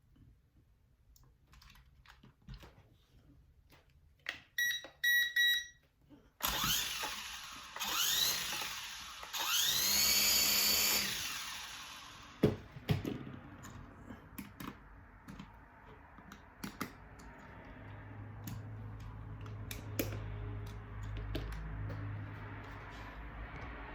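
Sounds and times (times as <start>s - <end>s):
drone motors whining: 6.4s - 12.4s.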